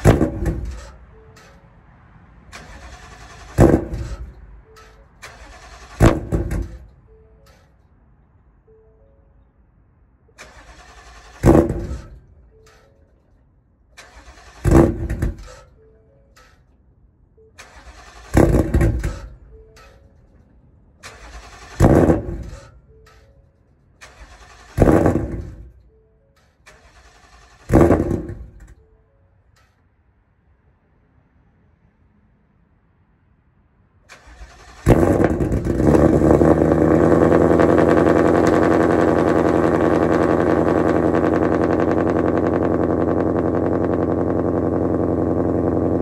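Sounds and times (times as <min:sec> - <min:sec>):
engine firing exhaust burst: 0:00.0 - 0:01.0, 0:02.5 - 0:04.4, 0:05.2 - 0:06.9, 0:10.4 - 0:12.3, 0:14.0 - 0:15.6, 0:17.6 - 0:19.4, 0:21.0 - 0:22.7, 0:24.0 - 0:25.8, 0:26.7 - 0:28.7, 0:34.1 - 0:46.0.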